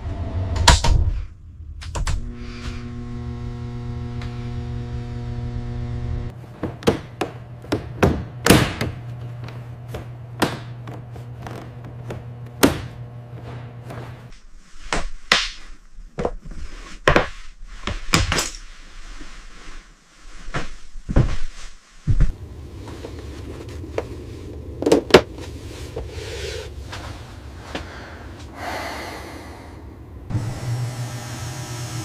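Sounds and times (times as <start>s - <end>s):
low steady rumble: 1.0s - 6.4s, 22.3s - 30.4s.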